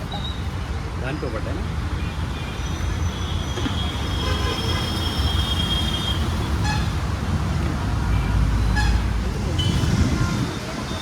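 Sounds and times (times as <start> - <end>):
road traffic: 0.0 - 11.0
vehicle horn long toot: 3.8 - 6.9.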